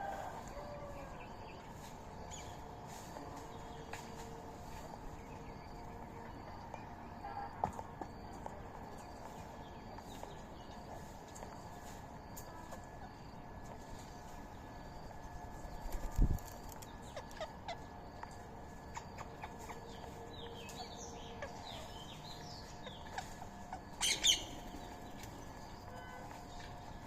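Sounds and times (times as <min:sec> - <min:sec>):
parrots ticking and chirping: 0:15.0 - 0:27.0.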